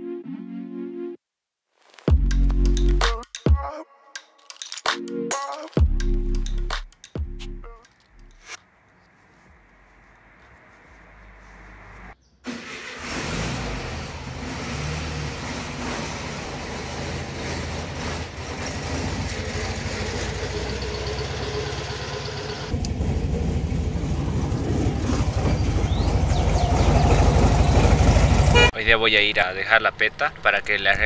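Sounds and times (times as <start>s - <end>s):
car engine idling: 8.2s - 28.7s.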